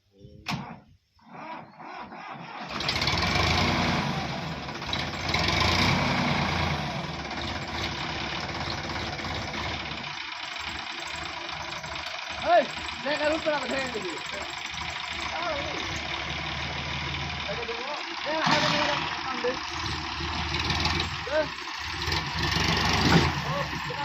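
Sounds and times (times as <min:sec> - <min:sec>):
diesel tractor engine running: 0:01.8 - 0:24.0.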